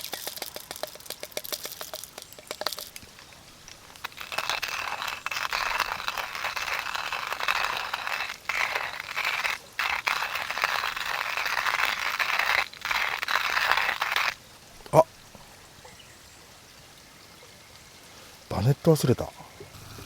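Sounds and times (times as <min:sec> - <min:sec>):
plastic crinkling and rustling: 0:00.0 - 0:14.4.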